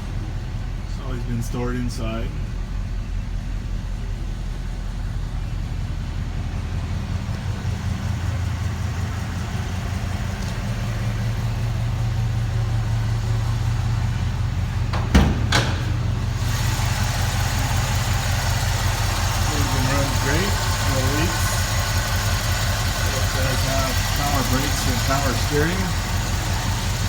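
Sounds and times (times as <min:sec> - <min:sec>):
pickup engine idling: 0:00.0 - 0:27.0
sharp knocks: 0:14.9 - 0:16.3.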